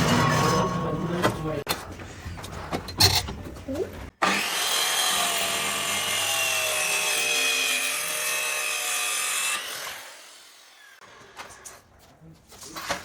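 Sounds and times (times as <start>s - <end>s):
power tool on wood winding down: 4.2s - 11.0s.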